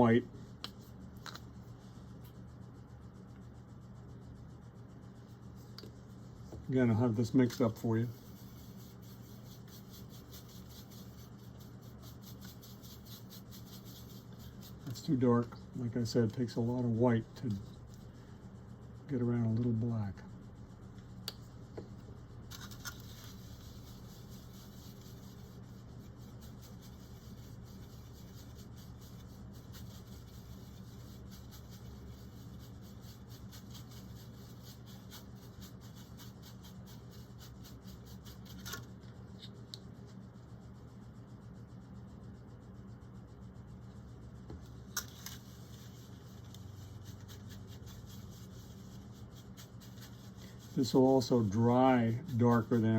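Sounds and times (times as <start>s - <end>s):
paintbrush scratching on palette: 5.1s - 18.3s, 22.5s - 40.4s, 43.9s - 52.9s.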